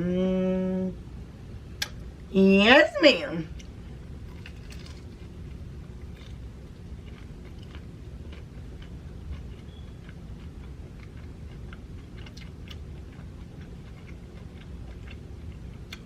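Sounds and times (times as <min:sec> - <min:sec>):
steady low hum: 0:00.0 - 0:16.0
close chewing: 0:04.3 - 0:16.0.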